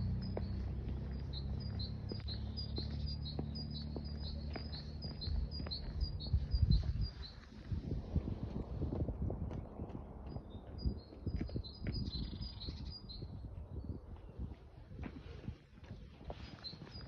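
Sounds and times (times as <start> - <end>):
songbird chirping: 0.0 - 7.7, 9.7 - 14.8
low wind rumble: 0.0 - 17.0.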